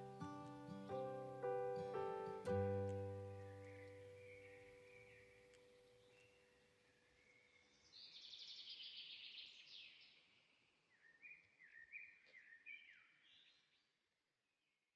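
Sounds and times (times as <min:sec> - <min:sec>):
bird chirping: 0:00.0 - 0:14.0
bird trill: 0:03.0 - 0:06.5.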